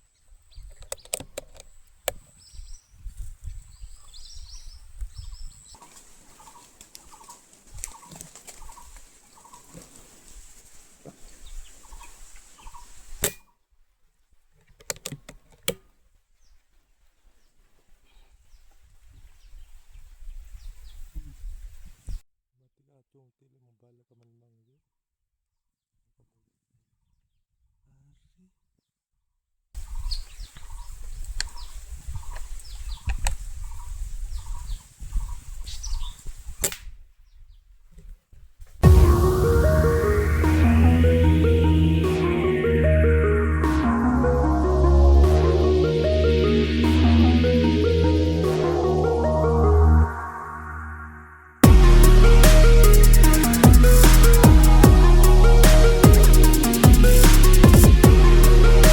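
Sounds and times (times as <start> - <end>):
low rumble: 38.8 - 58.9.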